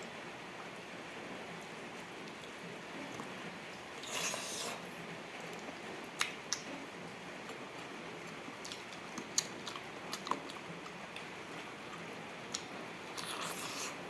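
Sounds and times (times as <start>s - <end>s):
person chewing: 4.0s - 4.8s, 8.6s - 14.0s.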